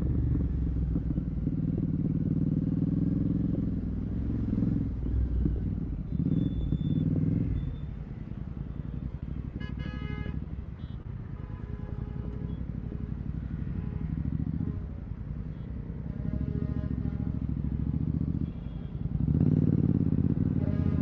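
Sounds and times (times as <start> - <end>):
vehicle horn honking: 9.6 - 11.0, 15.6 - 17.5, 20.5 - 21.0.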